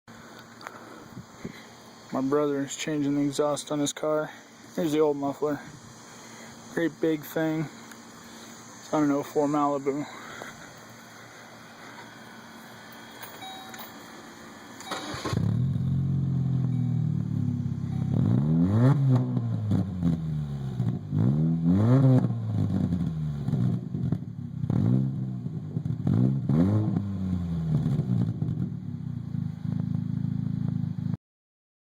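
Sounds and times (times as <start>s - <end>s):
car engine starting and revving: 14.8s - 31.0s.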